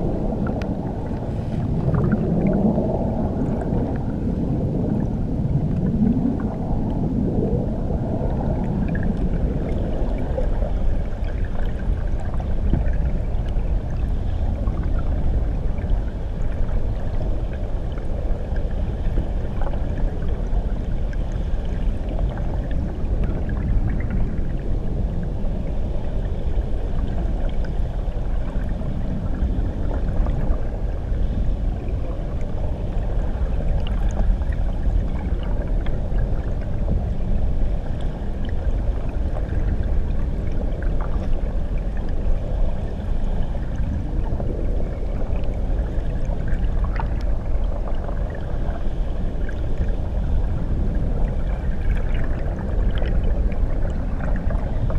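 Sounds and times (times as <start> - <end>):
bubbles ticking: 0.0 - 17.6
muffled underwater rushing: 0.0 - 54.9.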